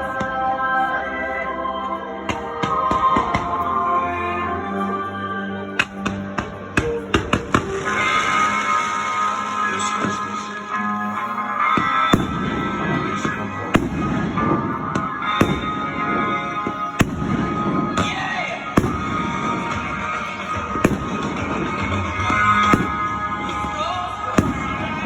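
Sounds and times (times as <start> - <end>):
music playing: 0.0 - 25.0
fireworks banging and crackling: 5.8 - 25.0.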